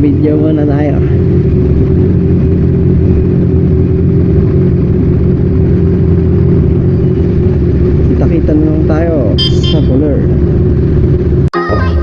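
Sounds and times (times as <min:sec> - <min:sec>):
wind and road noise: 0:00.0 - 0:11.5
motorcycle engine running: 0:00.0 - 0:12.0.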